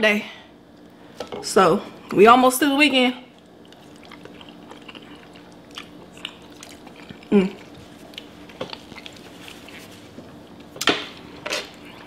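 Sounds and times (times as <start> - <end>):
faint steady hum: 0.0 - 12.0
person chewing food: 3.3 - 12.0
person humming mm: 7.3 - 7.6.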